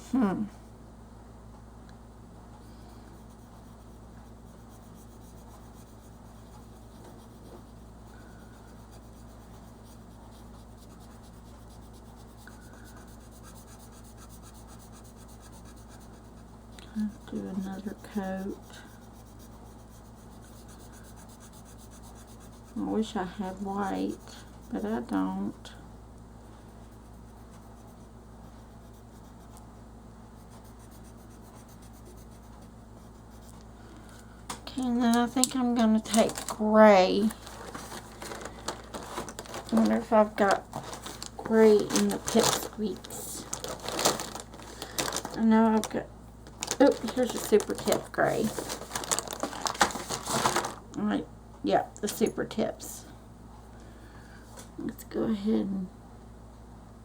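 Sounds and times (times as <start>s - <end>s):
low electrical hum: 0.0s - 57.0s
crayon rubbing on paper: 2.8s - 25.4s, 26.7s - 29.6s, 30.4s - 33.6s, 46.8s - 48.7s.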